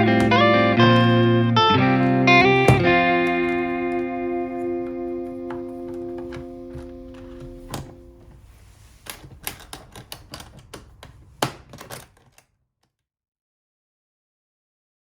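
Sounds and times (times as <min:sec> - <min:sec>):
guitar music: 0:00.0 - 0:08.4
sharp clicks and knocks: 0:04.9 - 0:12.5.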